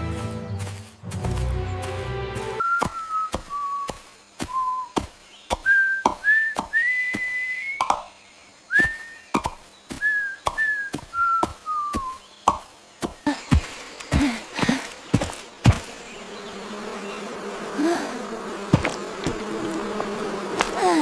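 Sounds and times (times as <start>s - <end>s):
person whistling a tune: 2.6s - 3.9s, 5.6s - 7.8s, 8.7s - 9.2s, 10.0s - 12.2s.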